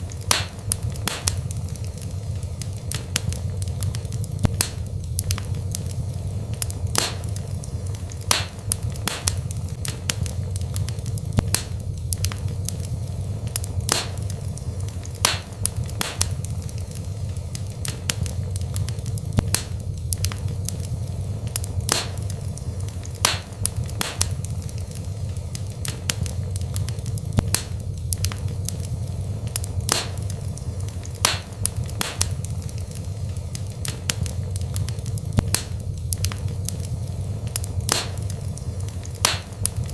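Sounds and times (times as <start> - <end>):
fire crackles and pops: 0.0 - 39.9
low rumble of flames: 0.0 - 39.9.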